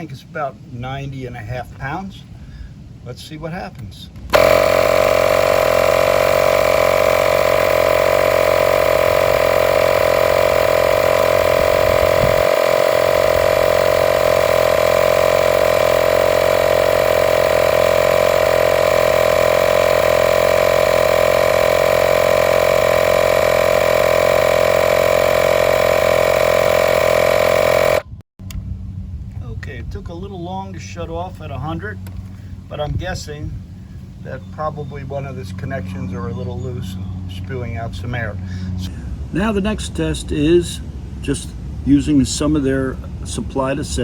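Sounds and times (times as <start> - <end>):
cordless air compressor humming: 4.3 - 28.8, 37.1 - 39.3.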